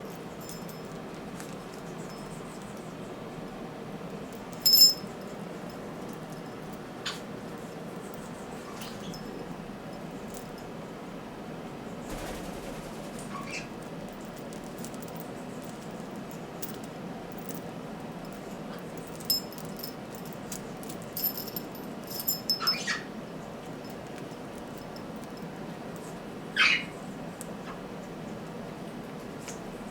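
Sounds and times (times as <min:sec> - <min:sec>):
metal toy clinking and jangling: 0:00.1 - 0:01.0, 0:04.3 - 0:05.2, 0:18.2 - 0:23.0
sharp metallic hits: 0:12.1 - 0:13.6
parrot squeaking: 0:26.6 - 0:26.9.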